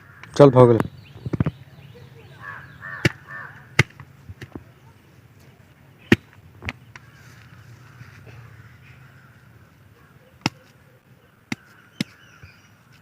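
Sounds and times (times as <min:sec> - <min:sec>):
faint bird calls: 0:00.0 - 0:03.8, 0:04.6 - 0:13.0.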